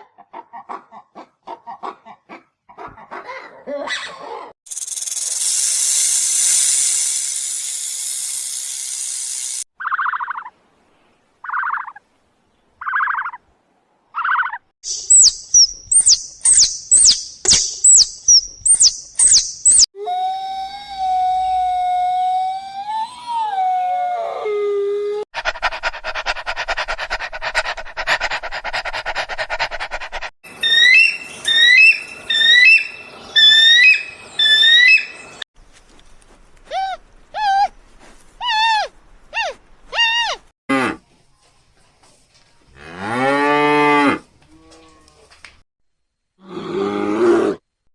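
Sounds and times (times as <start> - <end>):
high whistling chirps: 4.7 - 7.0, 14.8 - 19.9, 30.5 - 35.4
buzzing: 4.7 - 9.6.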